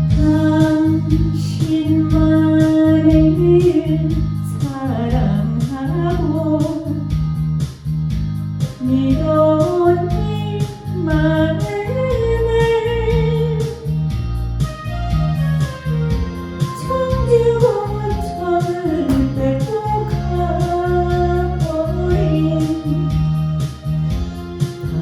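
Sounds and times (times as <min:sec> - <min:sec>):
woman singing: 0:00.1 - 0:07.0, 0:08.8 - 0:13.9, 0:16.7 - 0:23.2
backing track with bass and beat: 0:02.1 - 0:09.2, 0:13.2 - 0:21.6.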